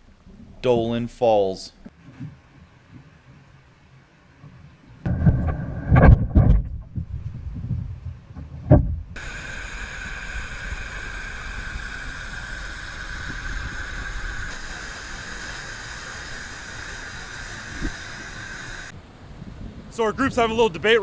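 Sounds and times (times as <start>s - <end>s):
low rumble: 5.0s - 19.8s
waterfall rushing hiss: 9.2s - 19.0s.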